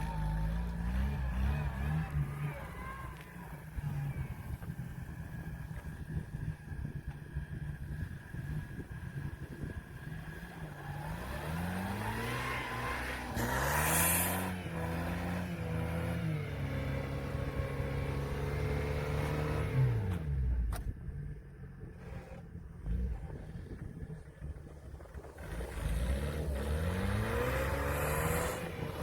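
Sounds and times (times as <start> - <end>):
engine revving: 0.0 - 4.3, 10.0 - 20.9, 24.6 - 29.0.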